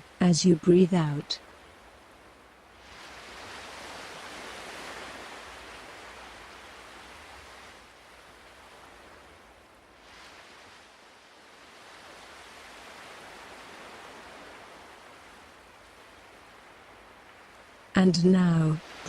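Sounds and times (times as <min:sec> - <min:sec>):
ocean waves washing in: 0:00.0 - 0:19.0.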